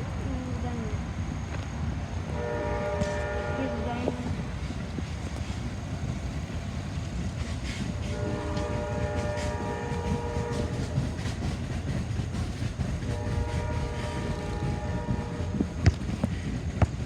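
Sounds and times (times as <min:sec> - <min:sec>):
train cars rumbling past: 0:00.0 - 0:17.0.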